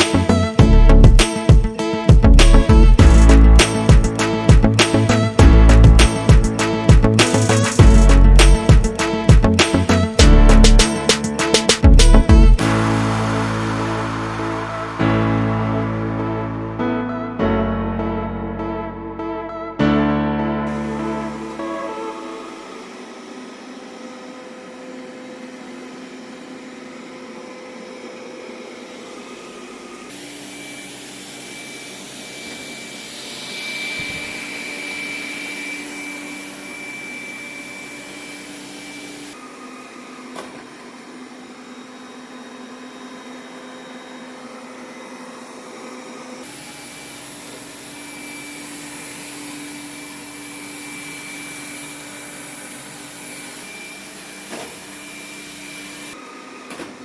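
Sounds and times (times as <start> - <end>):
robot vacuum whine and hum: 20.8 - 57.0.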